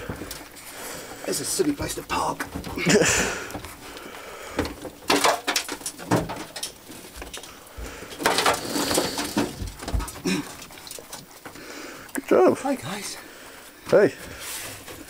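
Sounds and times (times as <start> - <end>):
scrapes and knocks on metal: 4.5 - 10.7.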